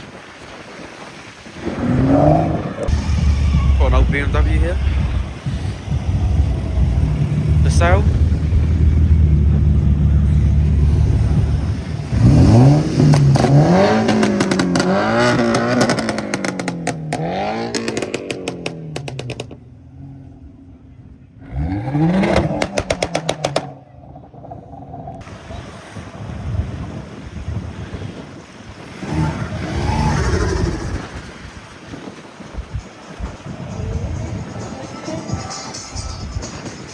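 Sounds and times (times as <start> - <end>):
car engine revving: 1.7 - 20.4, 21.4 - 24.4
exhaust pops and crackles: 2.7 - 19.7, 22.0 - 25.3.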